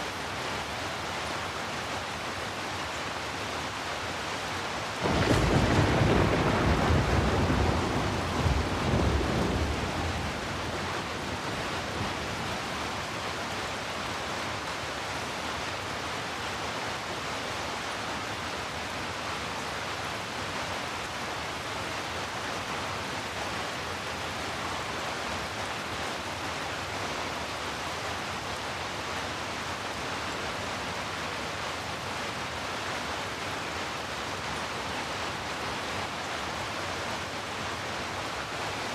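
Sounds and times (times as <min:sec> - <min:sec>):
steady rain falling: 0:00.0 - 0:38.9
low roll of thunder: 0:05.0 - 0:12.6.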